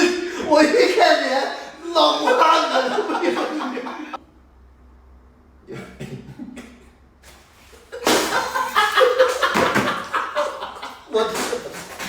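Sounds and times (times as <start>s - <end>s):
people laughing loudly: 1.9s - 4.2s, 8.0s - 11.8s.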